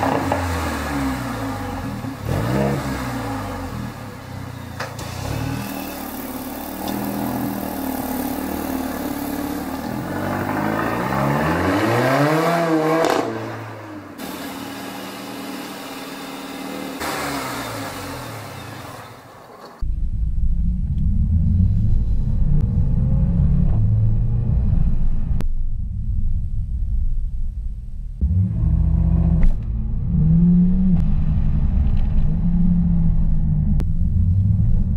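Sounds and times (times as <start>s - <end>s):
car engine accelerating: 0.0s - 25.4s, 28.2s - 34.9s
deep dull low rumble: 19.8s - 34.9s.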